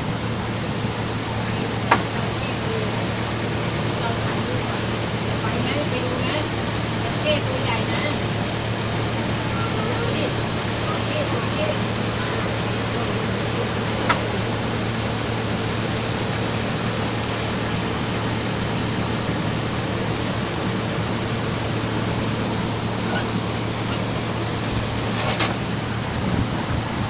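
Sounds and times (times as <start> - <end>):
boat engine humming: 0.0 - 27.0
water noise: 0.0 - 27.0
wind noise: 22.8 - 27.0.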